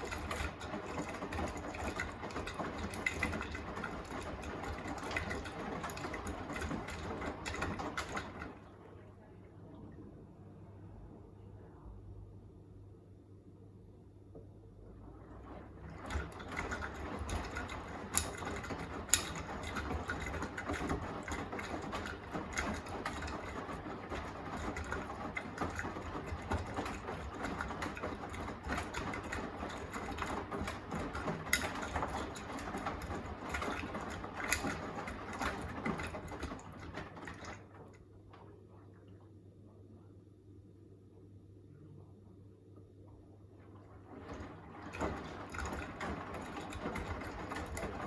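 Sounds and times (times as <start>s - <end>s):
load tumbling with clicks: 0.0s - 8.7s, 15.5s - 38.6s, 43.9s - 48.0s
washing machine drum whirring: 0.0s - 11.4s, 13.9s - 40.2s, 41.9s - 48.0s.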